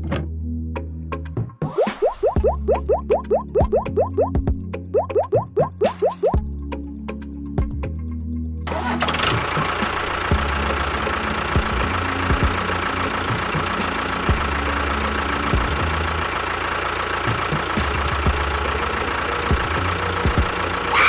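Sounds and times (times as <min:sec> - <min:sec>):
small machine droning: 0:08.9 - 0:21.0.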